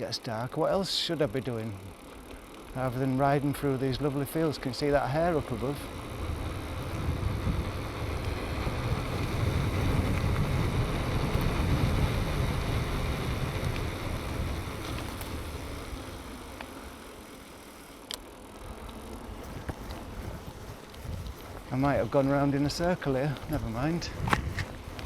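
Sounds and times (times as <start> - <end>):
bicycle tyres rumbling: 0.0 - 25.0
wind buffeting microphone: 3.8 - 16.3, 18.7 - 25.0.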